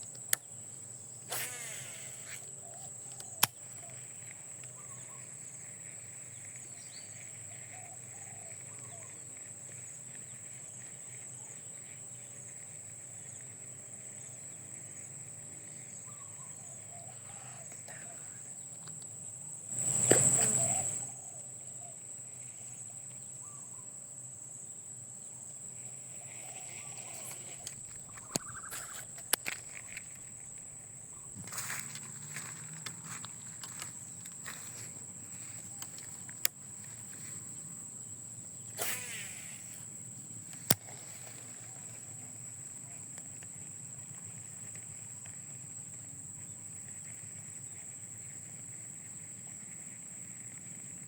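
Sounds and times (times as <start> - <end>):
faint bird chirps: 0.0 - 13.5, 14.1 - 18.8, 19.9 - 24.0, 25.8 - 36.4
insects droning: 0.0 - 51.0
sharp clicks: 1.3 - 3.9, 27.1 - 34.8, 35.6 - 36.6, 40.5 - 41.2.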